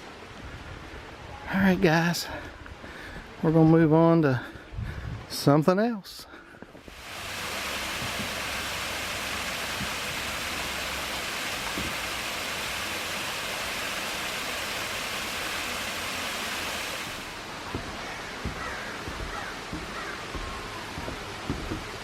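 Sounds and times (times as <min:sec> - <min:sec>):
waterfall rushing: 0:06.8 - 0:22.0
light knocks: 0:17.7 - 0:22.0.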